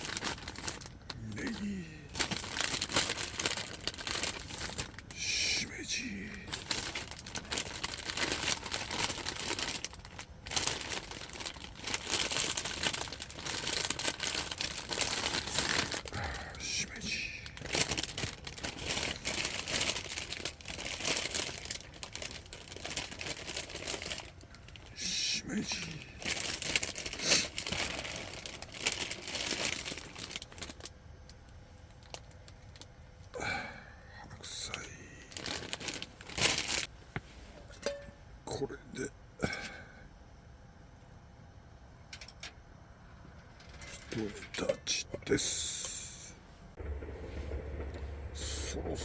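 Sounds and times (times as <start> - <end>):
mushrooms crinkling and crackling: 0.0 - 31.0, 34.6 - 36.9, 43.6 - 46.4.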